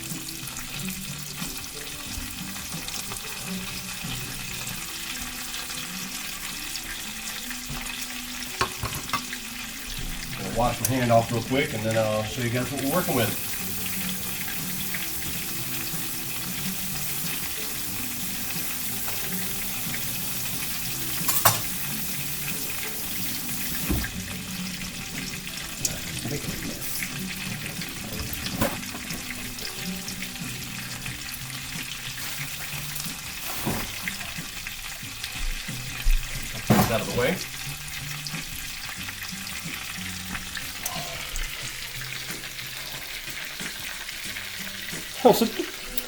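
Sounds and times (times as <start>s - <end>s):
chicken sizzling in hot oil: 0.0s - 46.0s
tap running: 12.8s - 24.3s.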